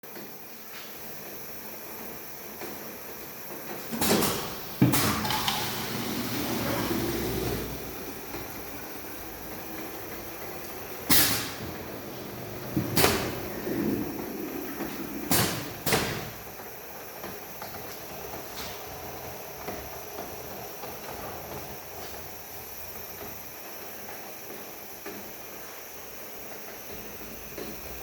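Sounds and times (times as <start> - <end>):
steady machine running: 3.5 - 24.3
machine hissing bursts: 4.0 - 16.6.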